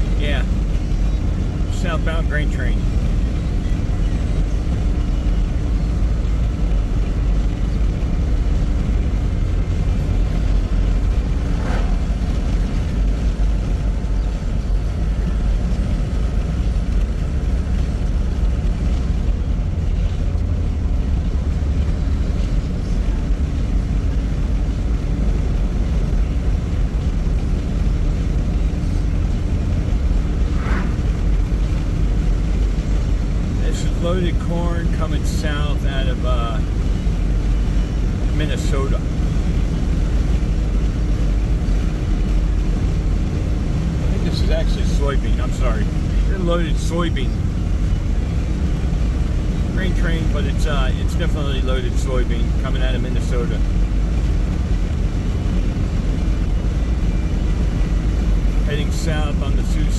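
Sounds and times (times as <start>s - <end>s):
freight train rumbling past: 8.9s - 16.4s, 27.1s - 33.6s.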